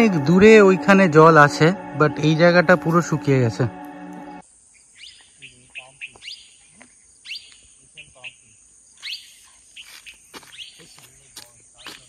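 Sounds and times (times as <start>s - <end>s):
birds chirping: 2.7s - 12.0s
insects droning: 4.4s - 12.0s.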